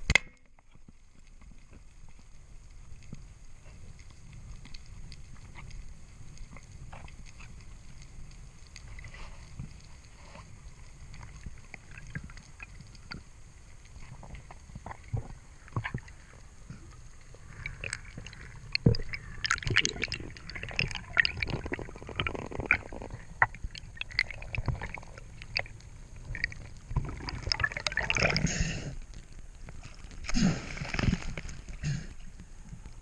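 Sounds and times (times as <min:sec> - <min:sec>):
water gurgling and bubbling: 0:14.1 - 0:32.4.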